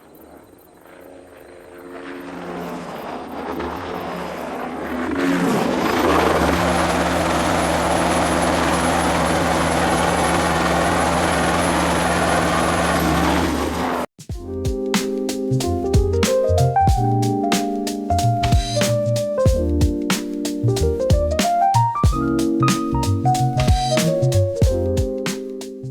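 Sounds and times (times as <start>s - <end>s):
helicopter rotor beat: 0.0s - 14.1s, 17.9s - 25.4s
helicopter turbine whine: 0.0s - 14.1s.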